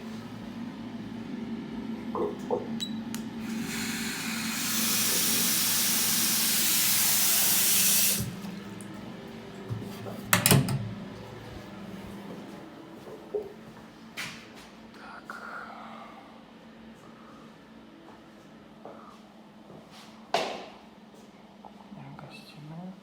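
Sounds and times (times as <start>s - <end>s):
water running from a tap: 3.4s - 9.0s.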